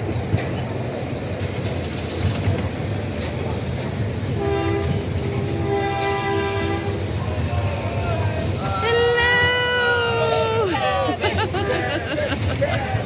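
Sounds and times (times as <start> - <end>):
miniature train rumbling: 0.0 - 13.0
two-note train horn: 4.4 - 7.1.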